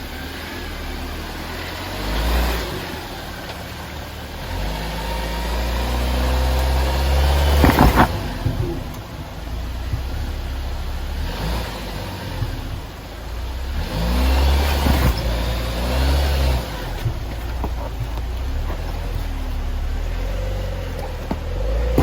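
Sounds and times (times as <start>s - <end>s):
off-road vehicle engine revving: 0.0s - 22.0s.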